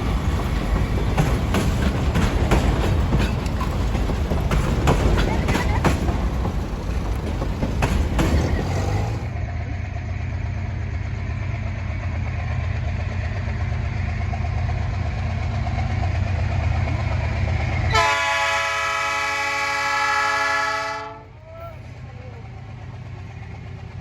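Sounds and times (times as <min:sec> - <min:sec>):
wheel clicks over rails: 0:00.0 - 0:09.4
freight train rumbling past: 0:00.0 - 0:24.0
locomotive air horn: 0:17.9 - 0:21.4.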